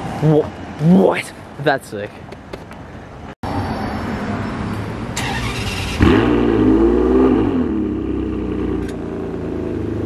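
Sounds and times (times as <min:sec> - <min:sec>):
sports car engine revving: 0:05.2 - 0:10.0.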